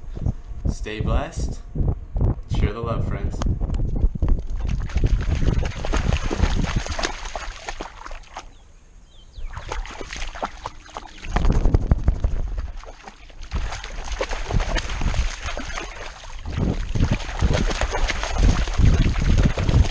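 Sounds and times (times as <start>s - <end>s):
wind buffeting: 0.0s - 7.9s, 9.2s - 19.9s.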